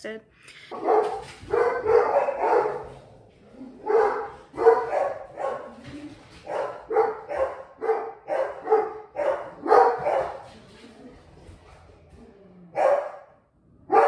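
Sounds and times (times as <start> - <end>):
dog barking: 0.7 - 3.0, 3.7 - 5.8, 6.4 - 10.4, 12.8 - 14.0.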